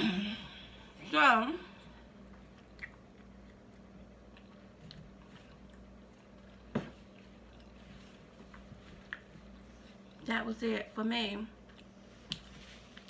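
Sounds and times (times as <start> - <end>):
person chewing: 1.9 - 10.2.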